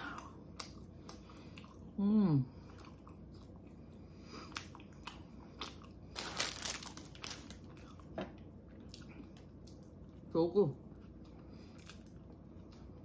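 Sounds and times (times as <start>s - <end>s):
close chewing mouth sounds: 0.0s - 2.0s, 2.6s - 6.2s
crackling rustle: 6.1s - 7.7s.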